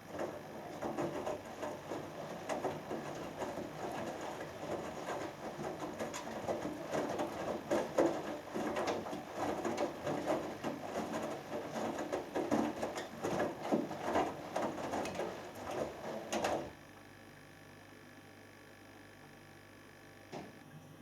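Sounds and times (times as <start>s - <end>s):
water sloshing: 0.0s - 16.7s
washing machine drum tumbling: 0.0s - 16.8s.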